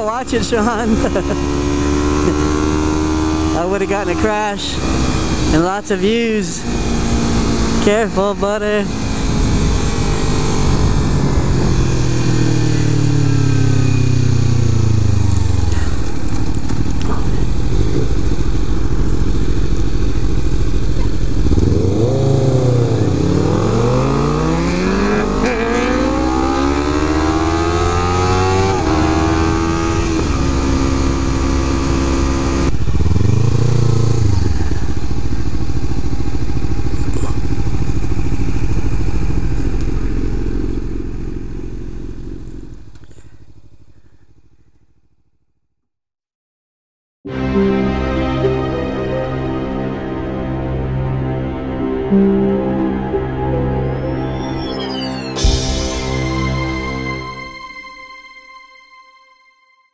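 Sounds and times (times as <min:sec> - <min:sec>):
motorcycle engine revving: 0:00.0 - 0:45.6
wind rushing over microphone: 0:09.0 - 0:13.0.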